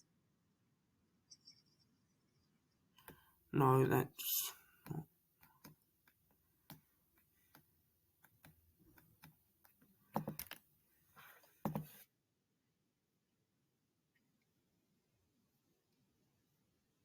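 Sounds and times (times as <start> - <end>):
computer keyboard taps: 8.2 - 10.6, 11.6 - 12.0.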